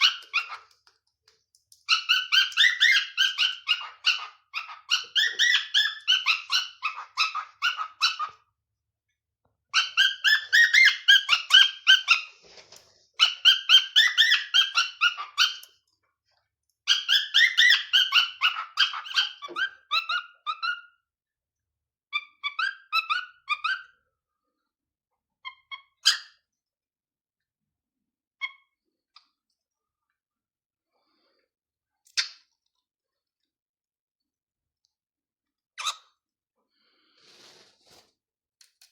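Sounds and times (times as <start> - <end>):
cockatiel singing: 0.0 - 0.8, 1.8 - 8.4, 9.8 - 12.3, 13.2 - 15.7, 16.8 - 21.0, 22.1 - 23.9.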